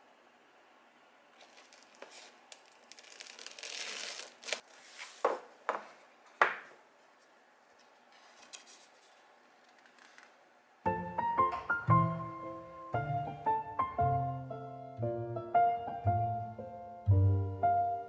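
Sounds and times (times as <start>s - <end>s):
paper or plastic crinkling: 1.3s - 5.4s, 7.8s - 10.4s.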